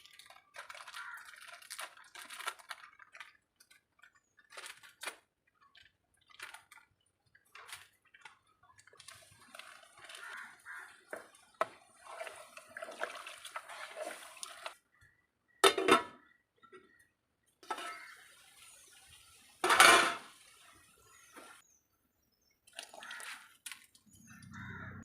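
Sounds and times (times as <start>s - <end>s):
wet squishing of food: 0.0s - 14.8s.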